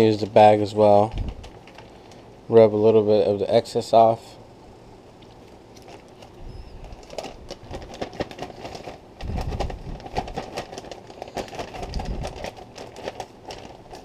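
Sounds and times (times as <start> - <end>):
plastic bag crinkling: 0.0 - 2.4, 5.3 - 14.0.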